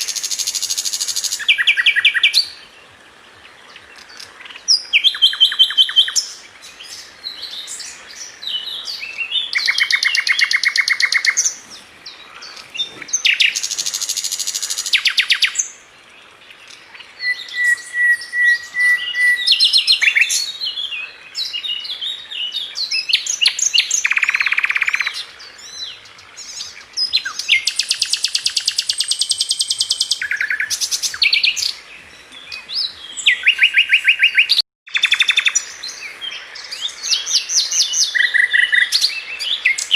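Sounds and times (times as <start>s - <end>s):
flycatcher singing trills and whistles: 4.2s - 11.6s, 17.2s - 39.9s.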